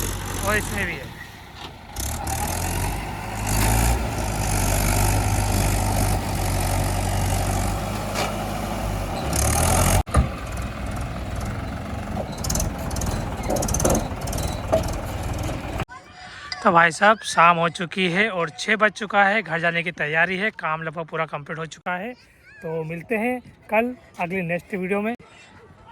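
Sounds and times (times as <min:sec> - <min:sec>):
diesel tractor engines running: 0:00.0 - 0:15.9.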